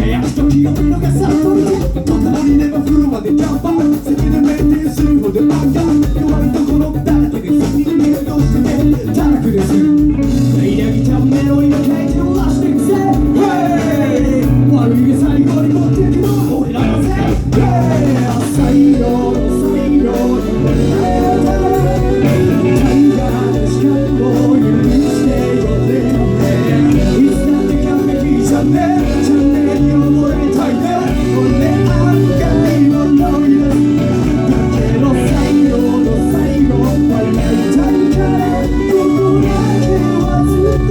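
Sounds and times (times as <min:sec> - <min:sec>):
live band playing: 0:00.0 - 0:40.9
person singing: 0:00.0 - 0:40.9.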